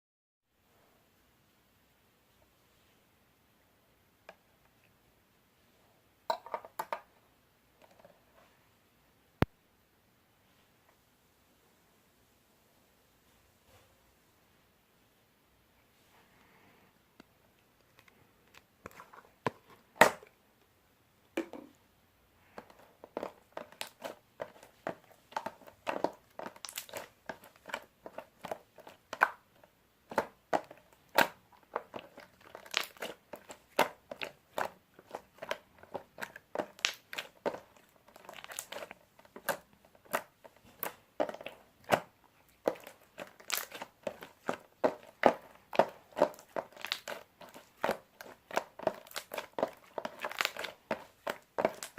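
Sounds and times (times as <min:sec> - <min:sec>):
crinkling handling sounds: 0:22.4 - 0:51.9.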